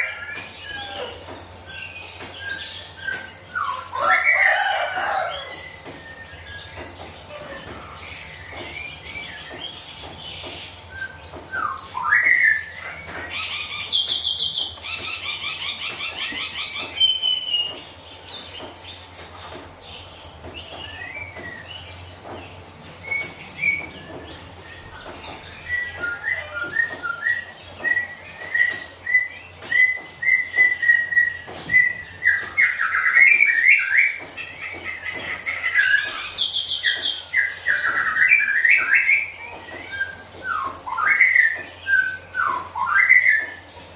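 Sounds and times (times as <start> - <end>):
bird singing whistled song: 1.8 - 4.5, 10.9 - 15.7, 23.0 - 34.3, 35.6 - 43.6.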